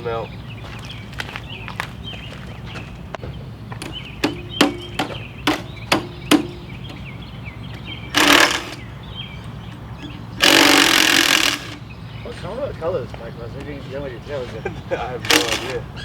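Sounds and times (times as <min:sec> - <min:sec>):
birds chirping: 0:00.0 - 0:16.0
sharp metallic knocks: 0:03.8 - 0:11.9, 0:15.2 - 0:15.8.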